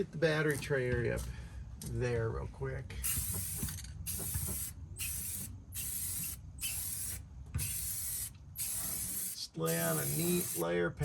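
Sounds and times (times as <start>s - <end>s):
aerosol spray can hissing: 3.0s - 10.7s.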